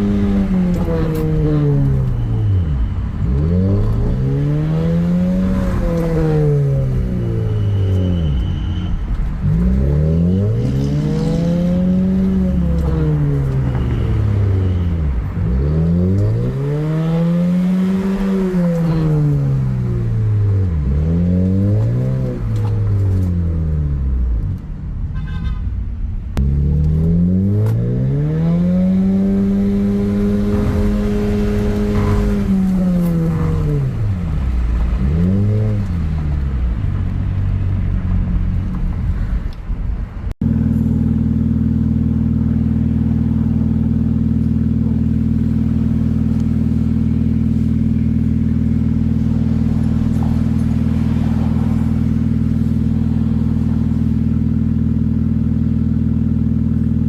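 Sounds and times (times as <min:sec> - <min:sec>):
car engine revving through exhaust: 0:00.0 - 0:08.5, 0:09.1 - 0:24.6, 0:26.4 - 0:39.1, 0:40.4 - 0:57.0.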